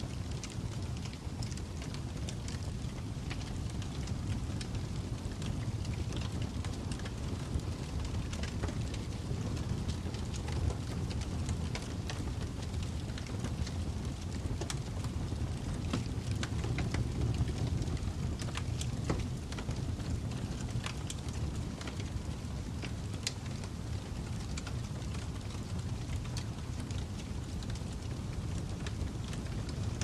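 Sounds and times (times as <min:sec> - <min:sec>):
fire crackling and popping: 0:00.0 - 0:30.0.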